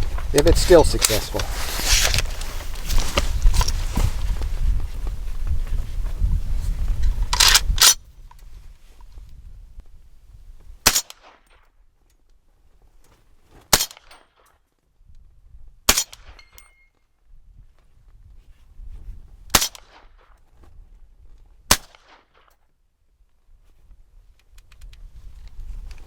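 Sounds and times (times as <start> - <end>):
rifle action cycling: 7.4 - 8.0
rifle shots with echo: 10.8 - 11.6, 13.7 - 14.2, 15.9 - 16.5, 19.5 - 20.2, 21.7 - 22.5.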